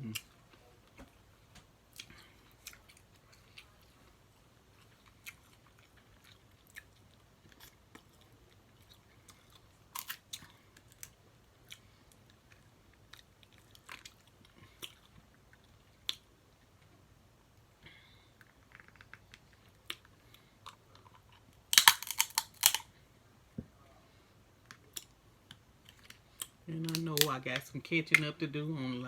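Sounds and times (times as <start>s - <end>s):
person chewing: 1.9s - 16.3s, 18.4s - 22.9s
crab shell clicks and crackles: 18.4s - 22.9s, 24.6s - 27.4s.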